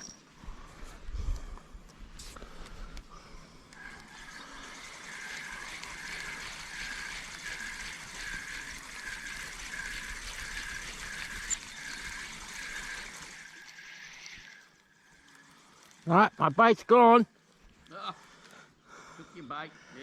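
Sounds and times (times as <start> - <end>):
fishing reel cranking: 3.8 - 17.1.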